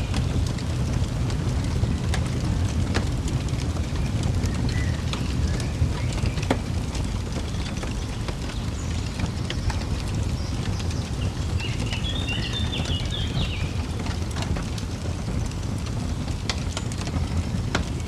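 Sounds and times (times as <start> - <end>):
fire crackling and popping: 0.0 - 18.0
low steady rumble: 0.0 - 18.0
bird twittering: 11.6 - 13.8.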